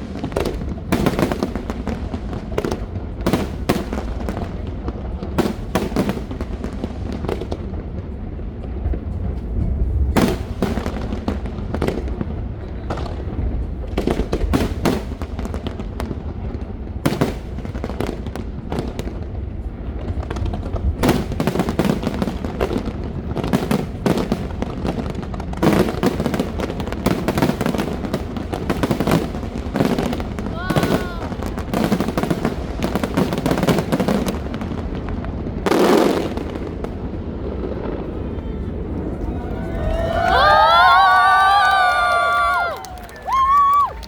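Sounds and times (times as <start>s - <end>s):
fireworks bangs and crackling: 0.0s - 44.0s
low rumble: 7.9s - 10.7s.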